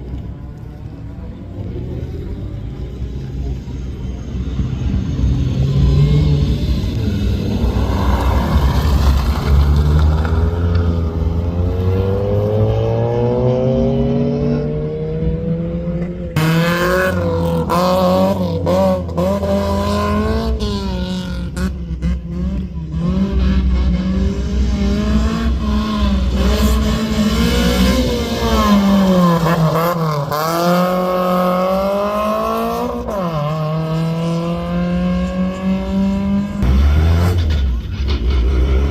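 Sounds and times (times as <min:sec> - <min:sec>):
rally car engine accelerating: 0:01.9 - 0:38.9.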